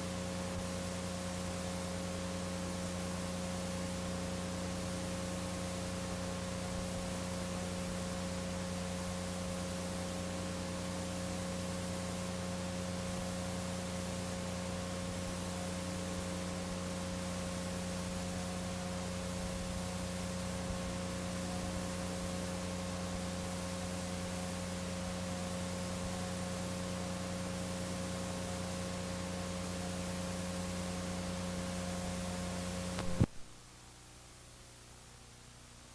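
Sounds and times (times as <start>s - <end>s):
low electrical hum: 0.0s - 35.9s
steady hiss: 17.1s - 33.6s
sharp click: 33.0s - 33.5s.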